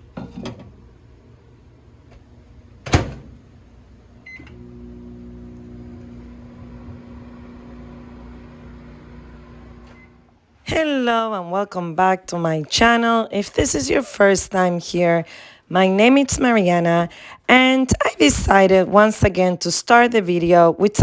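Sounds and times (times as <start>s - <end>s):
microwave humming: 0.0s - 10.6s
microwave door shutting: 2.8s - 3.4s.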